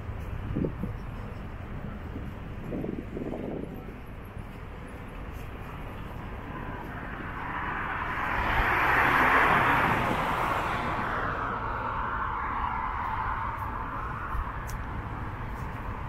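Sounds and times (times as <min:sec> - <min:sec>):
vehicle driving past: 0:06.5 - 0:14.6.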